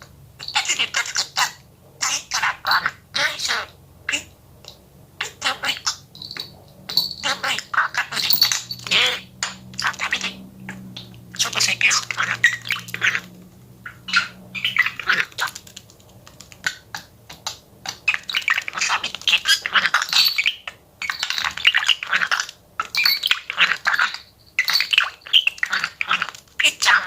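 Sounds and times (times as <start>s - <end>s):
budgerigar chattering: 7.1s - 15.7s, 16.6s - 27.0s.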